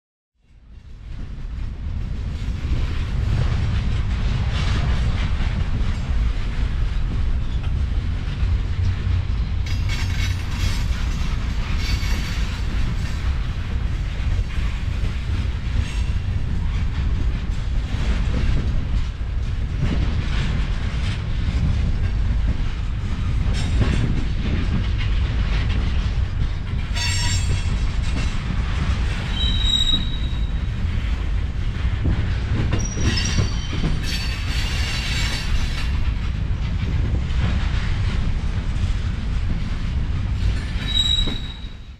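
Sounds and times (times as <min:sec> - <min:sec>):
freight train rumbling past: 0:00.5 - 0:41.9
wheels clattering on rails: 0:00.5 - 0:41.9
high-pitched wheel squeal: 0:29.3 - 0:30.5, 0:40.8 - 0:41.8.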